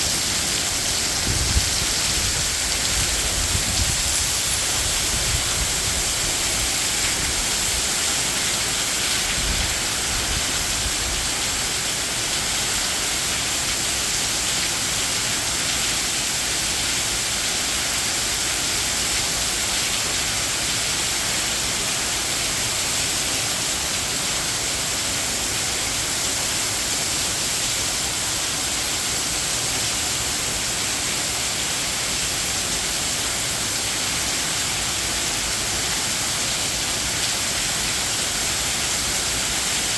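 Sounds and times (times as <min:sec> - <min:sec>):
heavy rain: 0:00.0 - 0:39.9
wind rumbling: 0:00.1 - 0:06.1.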